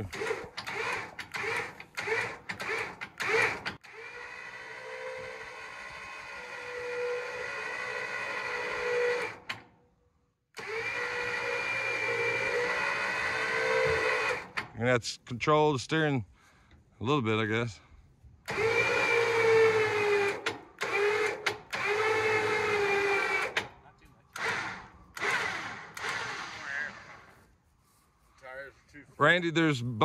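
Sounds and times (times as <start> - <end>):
electric winch motor whining: 0.0 - 9.7, 10.5 - 14.7, 18.5 - 23.7, 24.3 - 27.3.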